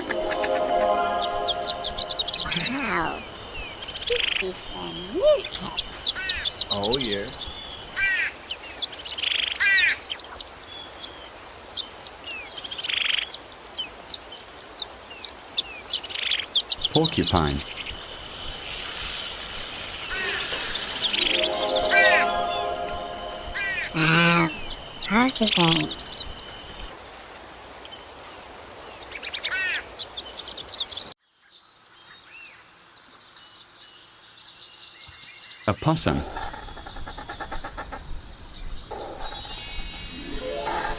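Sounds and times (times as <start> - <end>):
buzzy trills: 0.0 - 3.4, 20.1 - 25.7, 38.9 - 40.9
birds chirping: 0.0 - 9.2, 15.8 - 26.9
insects trilling: 2.4 - 8.8, 15.2 - 22.4, 23.5 - 30.0, 36.6 - 40.9
high insect-like drone: 18.1 - 26.9, 38.9 - 40.9.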